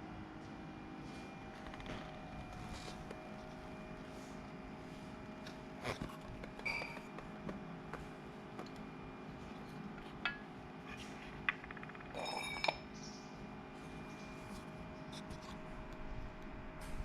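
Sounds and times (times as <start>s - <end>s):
faint hum: 0.0s - 17.0s
metal ringing: 11.5s - 12.8s.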